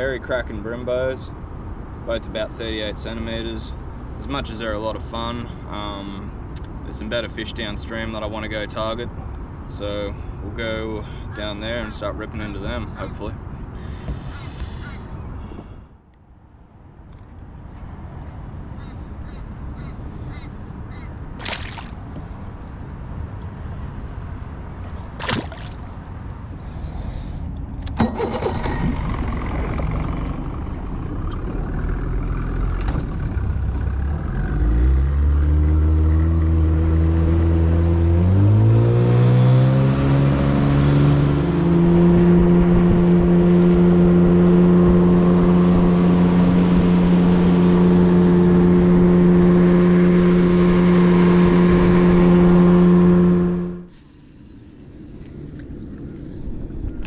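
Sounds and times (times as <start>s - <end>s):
outboard motor running: 28.0s - 34.1s, 42.2s - 54.6s.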